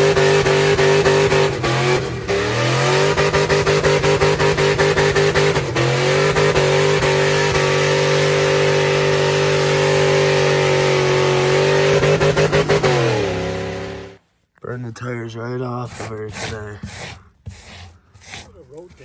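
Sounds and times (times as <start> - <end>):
truck engine at high revs: 0.0 - 14.2.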